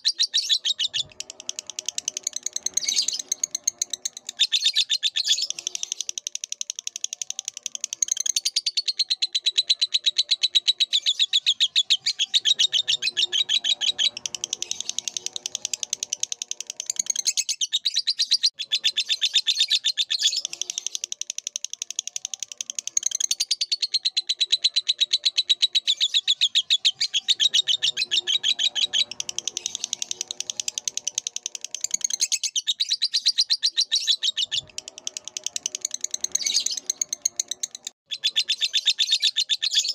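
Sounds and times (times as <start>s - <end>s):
bird singing rapid high chattering: 0.0s - 39.9s.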